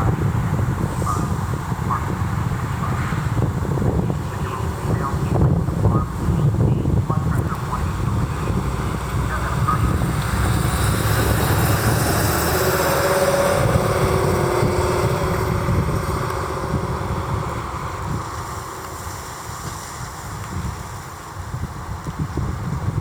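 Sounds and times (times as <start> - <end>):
vehicle driving past: 7.8 - 20.0.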